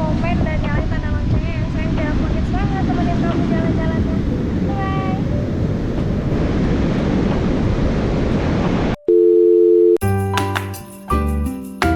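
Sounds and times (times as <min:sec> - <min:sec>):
wind buffeting microphone: 0:00.0 - 0:09.0
music: 0:10.0 - 0:11.9.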